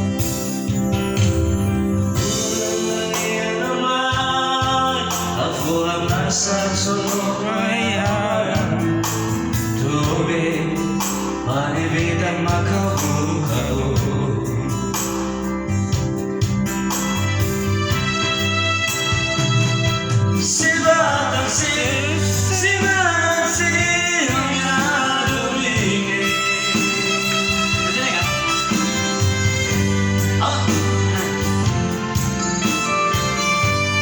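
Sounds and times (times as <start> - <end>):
electronic keyboard: 0.0 - 34.0
man singing: 2.1 - 15.4, 20.3 - 34.0.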